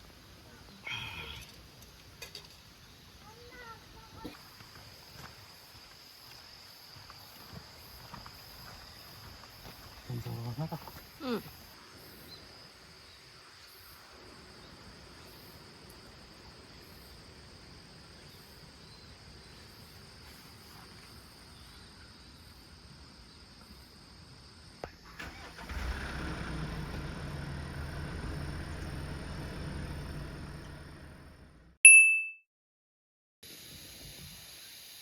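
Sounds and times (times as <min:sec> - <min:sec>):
vehicle engine humming: 0:25.2 - 0:31.8.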